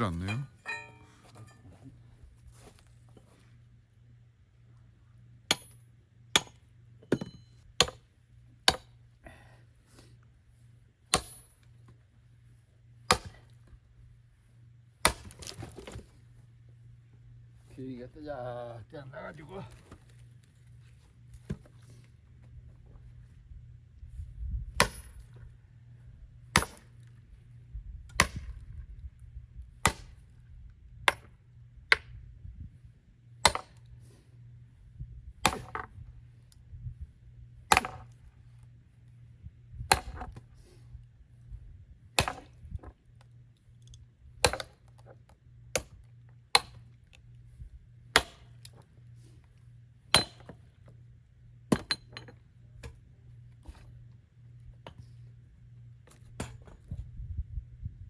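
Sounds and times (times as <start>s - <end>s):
axe chopping firewood: 5.5s - 9.0s, 11.1s - 11.7s, 13.1s - 13.6s, 15.0s - 16.0s, 21.4s - 21.8s, 24.8s - 25.2s, 26.5s - 27.0s, 28.1s - 28.6s, 29.8s - 30.2s, 31.0s - 32.2s, 33.4s - 33.9s, 35.4s - 36.0s, 37.7s - 38.2s, 39.8s - 40.5s, 42.1s - 42.6s, 44.4s - 46.9s, 48.1s - 48.8s, 50.1s - 50.6s, 51.6s - 52.2s, 56.1s - 56.8s.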